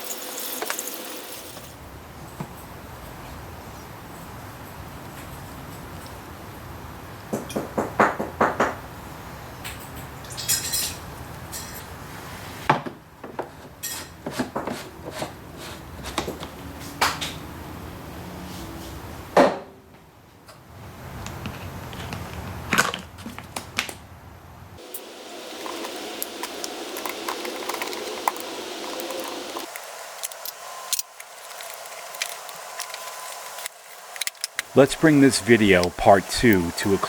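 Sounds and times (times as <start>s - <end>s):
hand tools clicking and rattling: 24.9s - 35.1s
steady low background noise: 29.6s - 37.0s.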